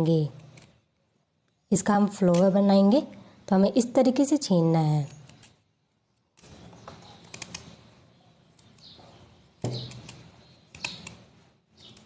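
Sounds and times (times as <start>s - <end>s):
blade scraping beetroot skin: 2.0s - 2.8s, 4.9s - 5.6s, 8.6s - 12.0s.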